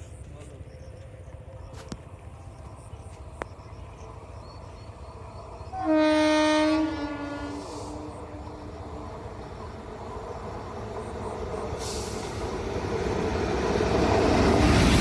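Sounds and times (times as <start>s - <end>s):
low train rumble: 0.0s - 15.0s
train horn blast: 5.7s - 8.6s.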